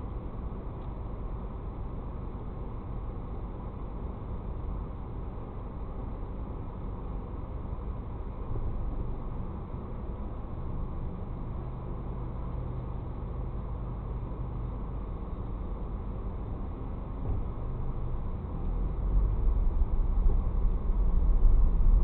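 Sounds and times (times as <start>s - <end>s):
car engine rumbling pulling away: 16.8s - 22.0s.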